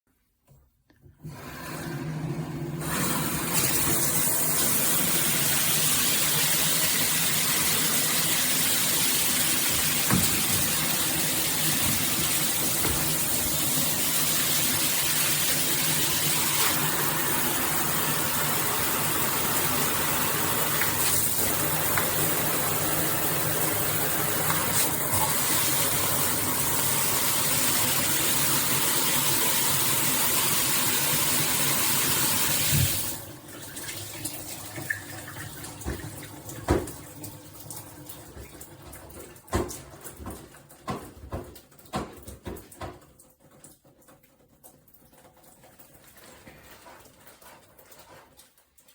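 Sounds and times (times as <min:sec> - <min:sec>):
shower head spraying water: 0:02.8 - 0:33.2.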